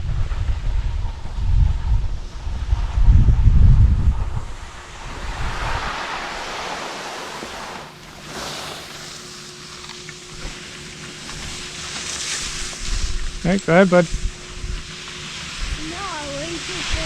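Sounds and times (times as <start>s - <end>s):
wind buffeting microphone: 0.0s - 9.2s, 12.5s - 17.0s
skis scraping over snow: 4.4s - 17.0s.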